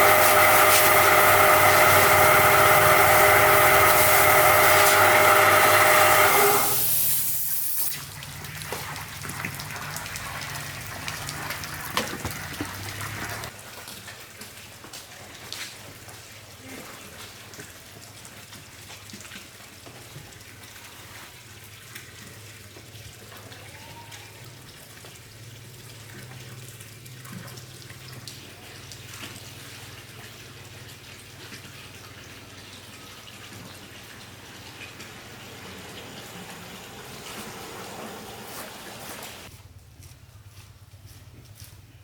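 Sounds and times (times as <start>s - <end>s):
water running and splashing: 0.0s - 14.8s, 24.4s - 39.5s.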